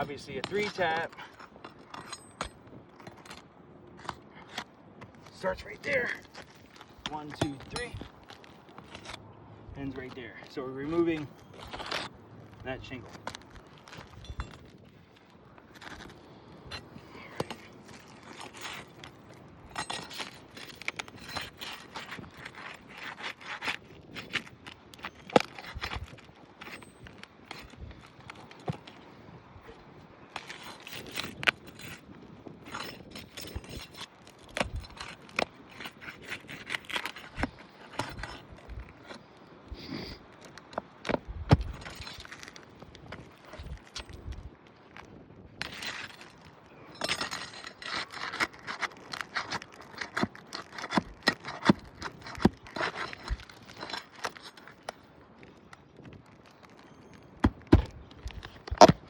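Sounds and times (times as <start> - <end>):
shingle scraping and crackling: 0.0 - 59.0
shingle snapping: 45.6 - 55.0, 56.0 - 59.0.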